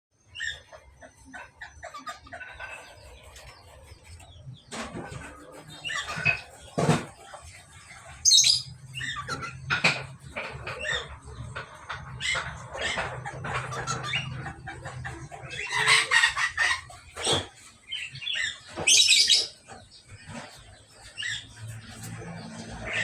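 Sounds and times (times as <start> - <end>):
budgerigars chirping: 0.2 - 23.0
bird squawking: 5.1 - 23.0.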